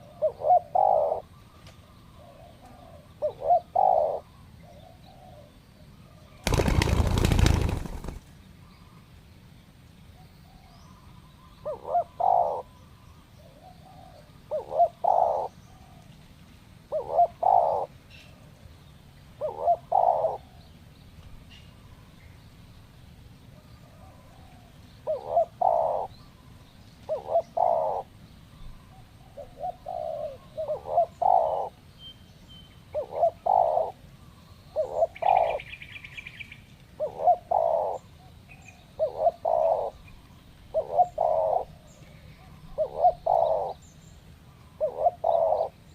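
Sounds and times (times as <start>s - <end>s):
doves cooing: 0.0s - 5.5s, 6.4s - 8.3s, 11.6s - 12.8s, 13.5s - 16.1s, 16.9s - 18.0s, 19.4s - 20.6s, 23.9s - 26.1s, 27.1s - 28.1s, 29.2s - 31.8s, 32.9s - 34.0s, 34.8s - 35.7s, 37.0s - 38.1s, 39.0s - 40.1s, 40.7s - 43.8s, 44.7s - 45.8s.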